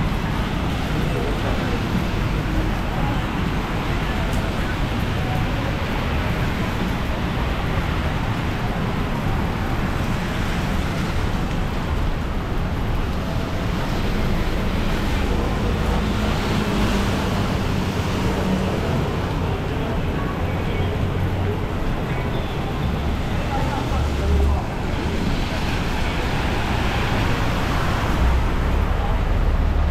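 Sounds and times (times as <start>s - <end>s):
traffic passing: 0.0s - 29.9s.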